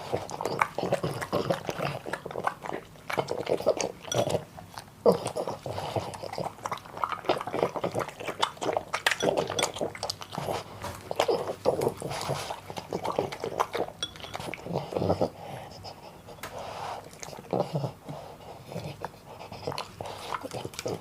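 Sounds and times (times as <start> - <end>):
puppy chewing and smacking: 0.0 - 21.0.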